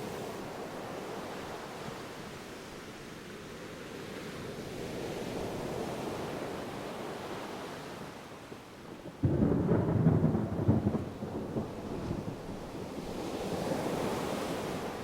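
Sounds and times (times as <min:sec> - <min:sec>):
low thunder rumble: 0:09.2 - 0:12.7
ocean surf washing: 0:12.6 - 0:15.0.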